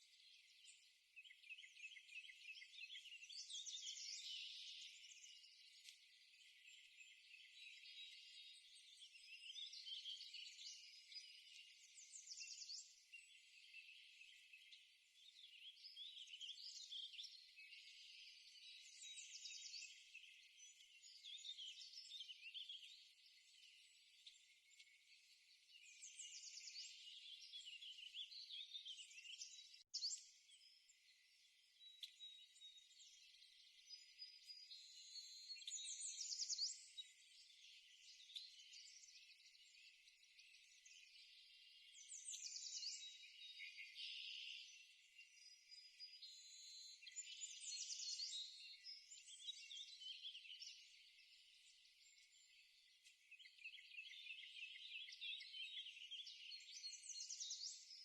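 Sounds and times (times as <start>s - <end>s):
faint birdsong: 0.0s - 58.0s.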